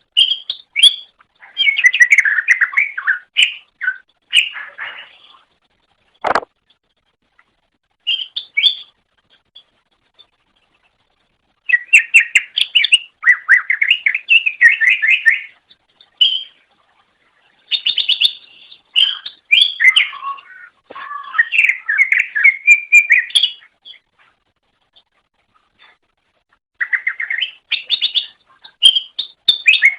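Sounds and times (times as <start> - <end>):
bird singing chattering whistles: 8.1 - 9.0, 17.7 - 24.0, 26.8 - 29.9.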